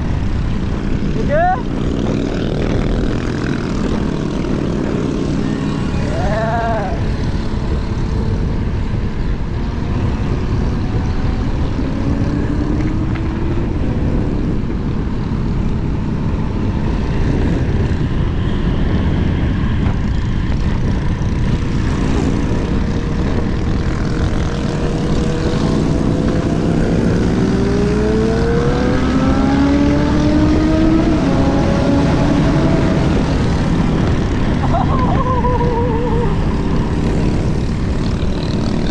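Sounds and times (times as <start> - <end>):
wind rushing over microphone: 0.0 - 38.9
motor whine rising in pitch: 5.3 - 8.6.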